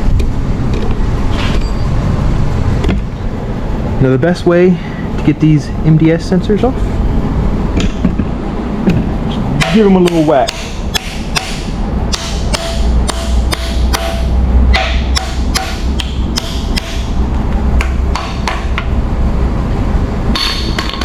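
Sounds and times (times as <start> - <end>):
hammer striking metal: 9.6 - 17.2, 17.8 - 18.9, 20.3 - 21.0.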